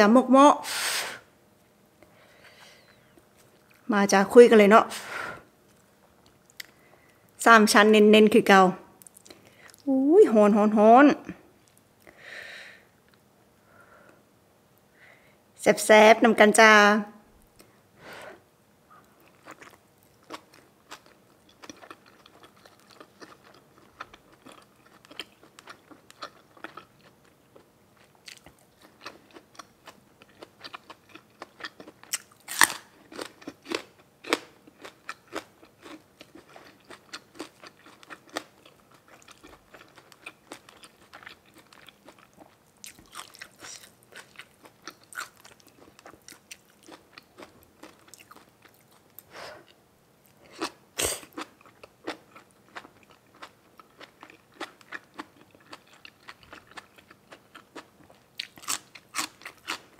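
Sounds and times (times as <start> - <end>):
person chewing crunchy food: 19.0 - 59.9.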